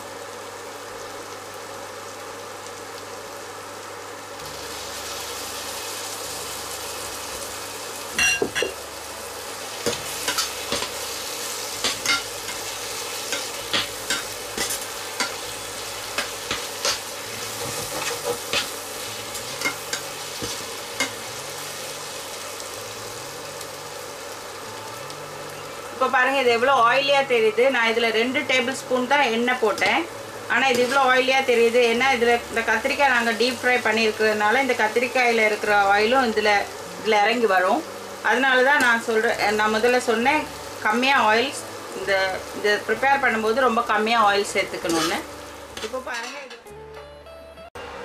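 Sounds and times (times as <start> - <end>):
food sizzling in a pan: 0.0 - 46.8
metal spoon scraping a pan: 16.2 - 21.2, 44.8 - 46.7.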